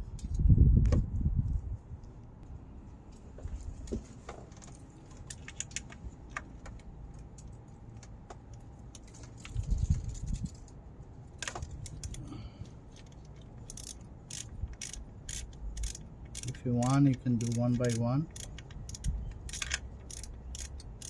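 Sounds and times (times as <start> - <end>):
metallic tool clicks and rattles: 11.4 - 12.3, 12.9 - 21.0
ratchet clicking: 11.4 - 12.3, 13.0 - 21.0.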